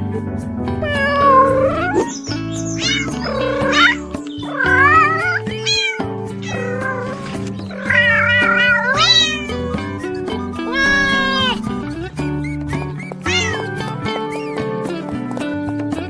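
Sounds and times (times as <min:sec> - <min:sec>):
background music with beat: 0:00.0 - 0:16.0
cat meowing: 0:00.8 - 0:11.7, 0:13.2 - 0:14.4.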